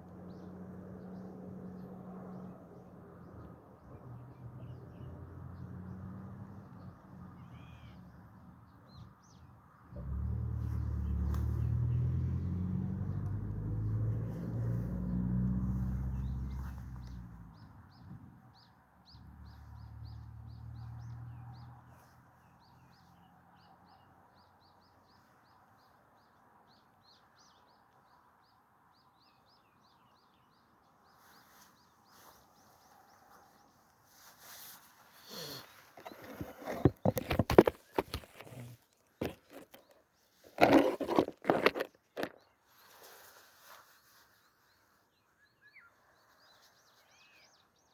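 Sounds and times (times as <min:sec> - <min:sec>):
small birds chirping: 0:15.8 - 0:47.9.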